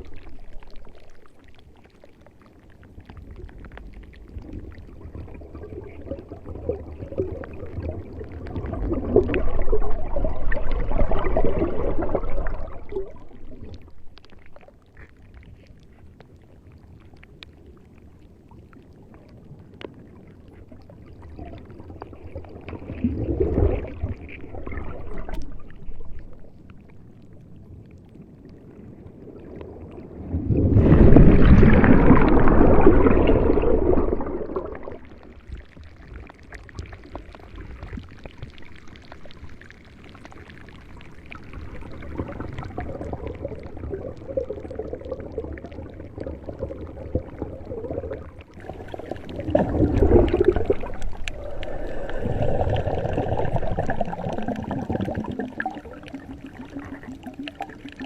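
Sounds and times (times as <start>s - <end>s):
water sloshing: 30.1s - 35.7s, 41.6s - 58.0s.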